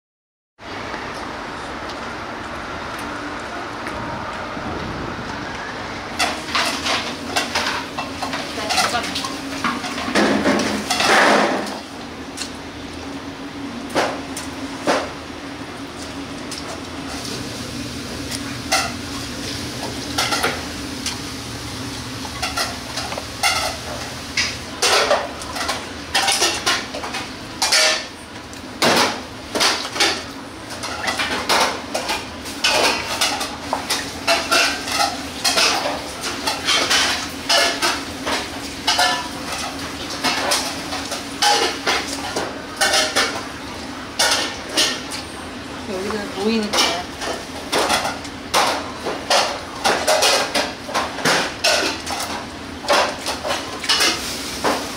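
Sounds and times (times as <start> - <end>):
metal utensils and dishes clinking: 6.2 - 11.8, 22.4 - 28.1, 30.8 - 43.4, 46.0 - 54.4.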